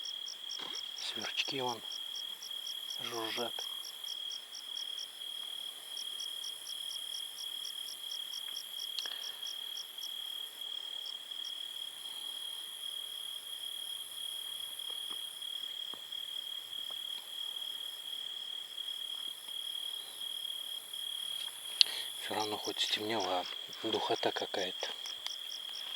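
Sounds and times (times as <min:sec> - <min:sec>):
crickets chirping: 0:00.0 - 0:25.9.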